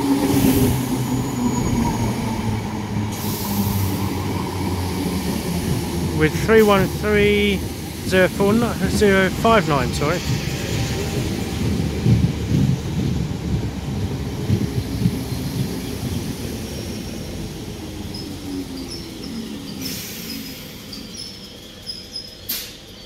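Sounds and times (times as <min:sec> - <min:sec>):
train rumble slowing: 0:00.0 - 0:23.0
brief air hiss: 0:22.5 - 0:22.8.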